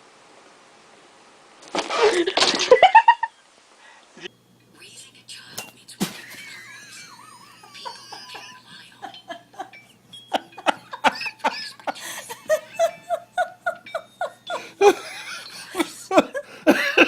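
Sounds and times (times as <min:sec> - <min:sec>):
person laughing: 0:01.9 - 0:03.3, 0:06.1 - 0:17.0.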